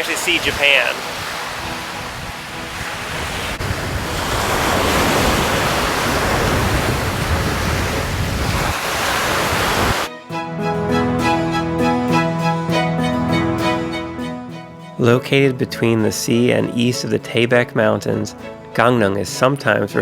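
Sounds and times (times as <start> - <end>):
bowed string music: 0.0 - 3.6, 10.1 - 20.0
sea waves washing onto beach: 0.0 - 10.1
wind on microphone: 0.0 - 10.1.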